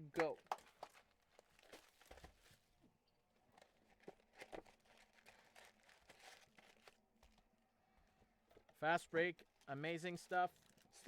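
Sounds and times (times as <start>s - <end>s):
cards clicking and rustling: 3.6s - 7.4s
wrapper tearing and crinkling: 4.0s - 7.0s.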